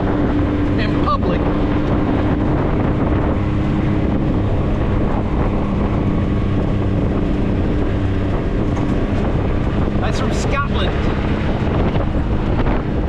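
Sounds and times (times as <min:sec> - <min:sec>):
engine humming: 0:00.0 - 0:13.0
wind buffeting microphone: 0:00.0 - 0:13.0.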